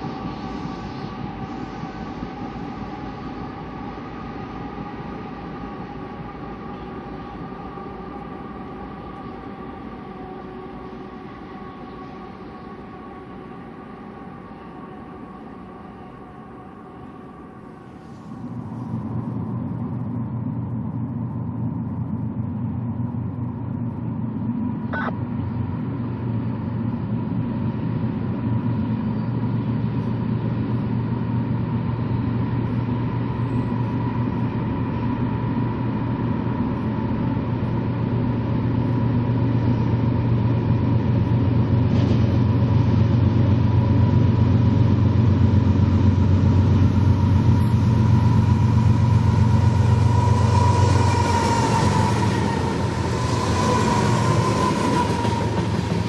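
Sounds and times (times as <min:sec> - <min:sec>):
freight train rumbling: 0:00.0 - 0:56.0
faint high tone: 0:24.9 - 0:25.2.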